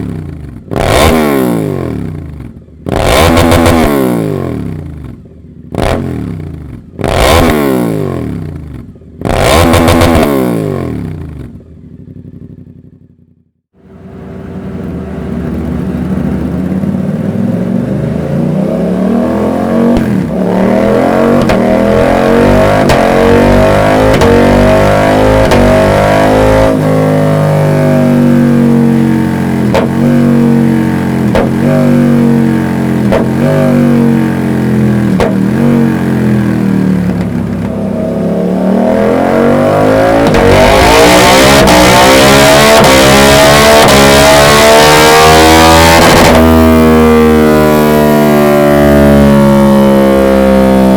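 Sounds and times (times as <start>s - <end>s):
motorcycle engine revving: 0.0s - 50.9s
exhaust cracks: 19.5s - 27.8s, 29.6s - 44.7s.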